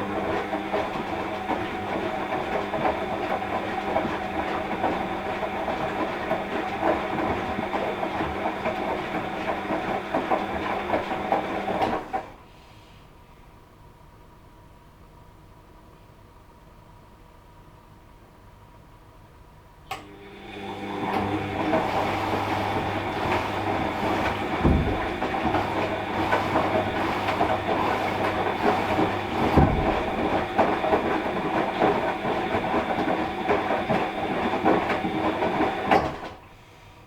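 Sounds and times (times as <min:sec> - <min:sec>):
washing machine drum rattling: 0:21.2 - 0:36.4
heavy thumps of load: 0:22.7 - 0:31.0.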